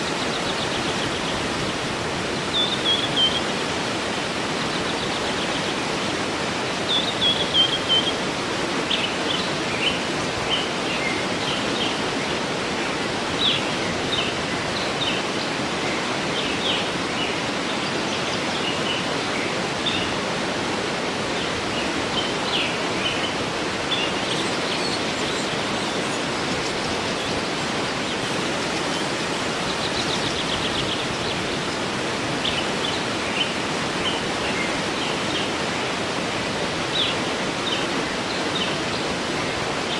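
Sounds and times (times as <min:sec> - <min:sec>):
birds chirping and trilling: 0:00.0 - 0:12.5, 0:21.3 - 0:35.5
waterfall rushing: 0:00.0 - 0:39.9.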